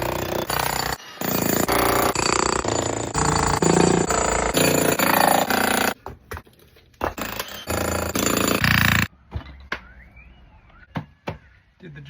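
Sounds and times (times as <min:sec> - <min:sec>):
jackhammer breaking concrete: 0:00.0 - 0:06.0, 0:07.2 - 0:09.1.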